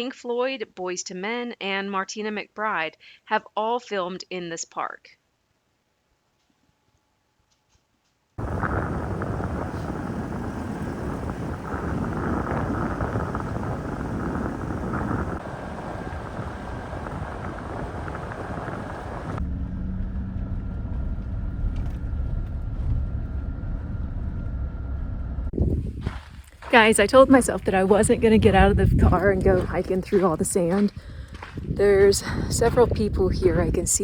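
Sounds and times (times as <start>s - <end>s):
pickup truck engine: 8.4s - 25.6s
road noise: 8.4s - 33.7s.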